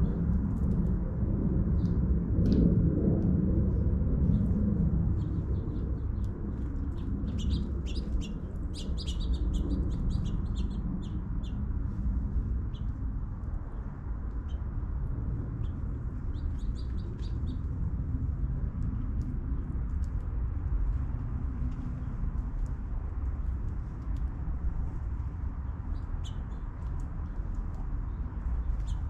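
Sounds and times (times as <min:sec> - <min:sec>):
low rumble: 0:00.0 - 0:29.0
birds chirping: 0:06.9 - 0:11.6.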